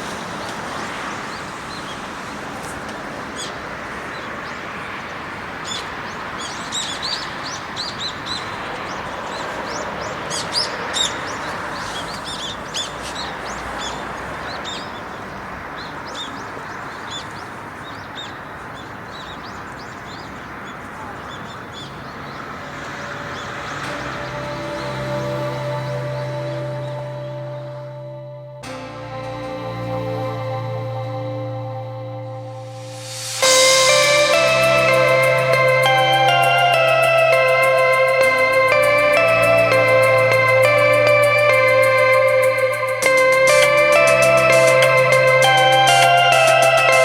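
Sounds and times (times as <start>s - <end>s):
small birds chirping: 0.0s - 28.8s
steady hiss: 32.4s - 47.0s.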